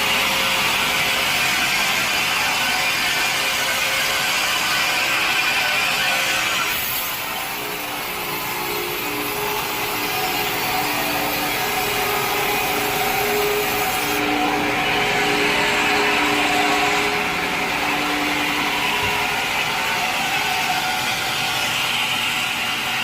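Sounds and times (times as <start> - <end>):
machine running hum: 0.0 - 23.0
saw blade cutting log: 0.0 - 23.0
short wavering tones: 6.9 - 21.3.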